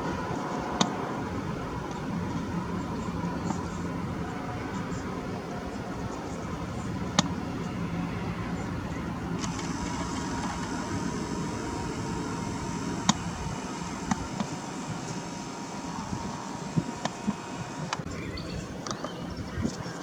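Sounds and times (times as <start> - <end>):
distant road traffic rumble: 0.0 - 20.0
sharp clicks: 9.4 - 18.1.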